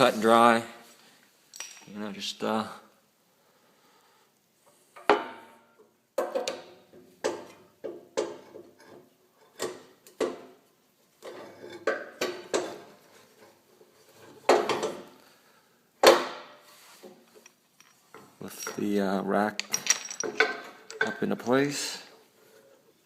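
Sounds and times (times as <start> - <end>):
metal clanks and knocks: 14.4 - 15.1, 19.6 - 21.3.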